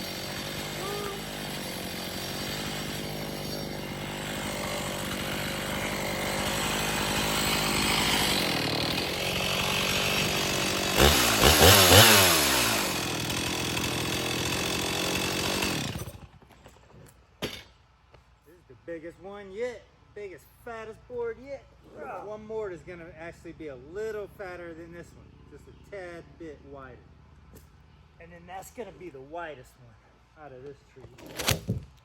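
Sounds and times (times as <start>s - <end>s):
chainsaw cutting log: 0.0s - 17.6s, 31.1s - 32.0s.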